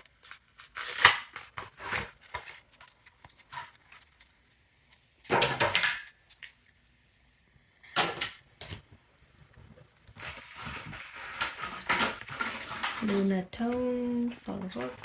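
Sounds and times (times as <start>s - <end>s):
foil pack rustling: 9.9s - 15.0s.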